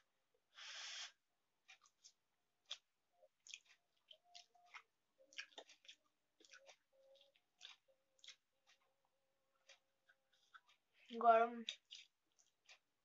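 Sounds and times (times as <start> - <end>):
chewing and mouth smacks: 1.6 - 8.9, 9.5 - 10.9, 11.6 - 12.9.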